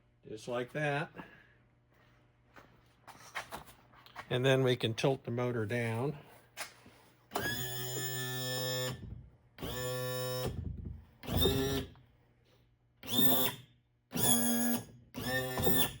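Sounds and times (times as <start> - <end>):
electric trim motor whining: 7.4 - 10.6.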